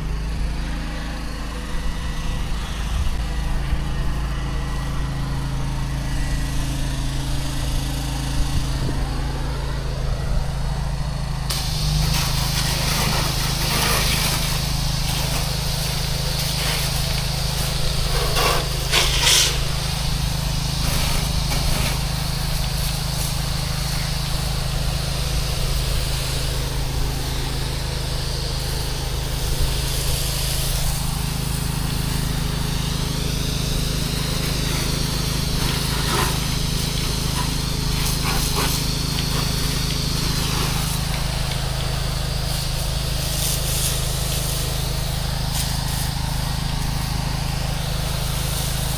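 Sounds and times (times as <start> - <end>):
pressure washer engine running: 0.0 - 48.9
hiss of spraying water: 11.3 - 48.9.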